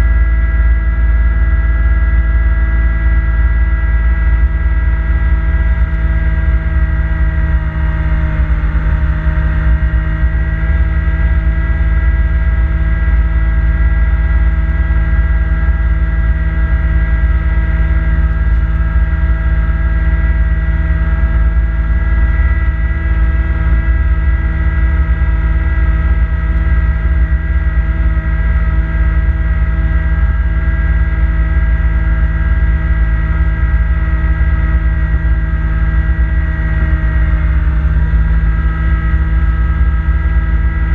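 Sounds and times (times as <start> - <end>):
diesel tractor engine droning: 0.0 - 40.9
snowblower whining: 5.6 - 12.4.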